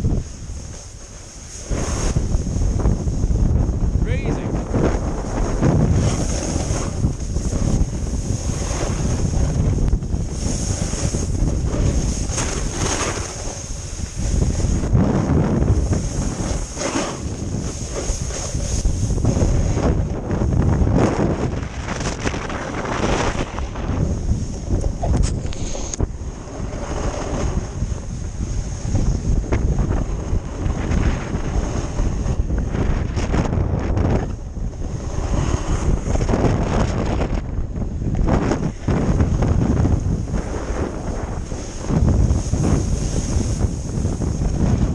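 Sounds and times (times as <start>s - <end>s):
snowboard scraping on icy snow: 0.0s - 37.4s, 38.2s - 44.9s
wind buffeting microphone: 0.0s - 44.9s.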